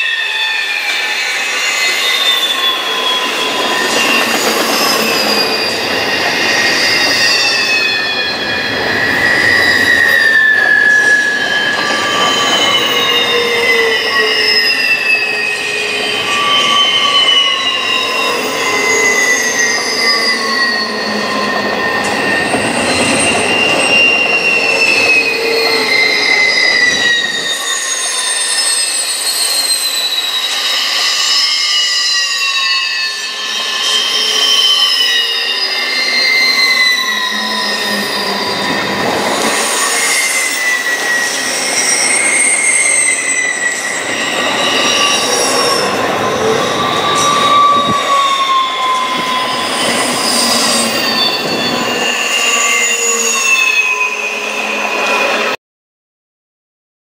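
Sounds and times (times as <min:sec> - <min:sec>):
train wheels squealing: 0:00.0 - 0:55.6
freight cars rumbling: 0:35.8 - 0:53.7.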